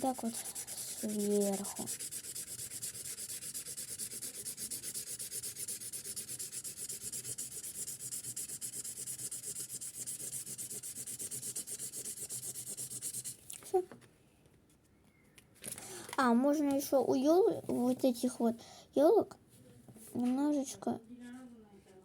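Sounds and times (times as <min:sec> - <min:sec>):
marker scratching on paper: 0:00.0 - 0:13.4.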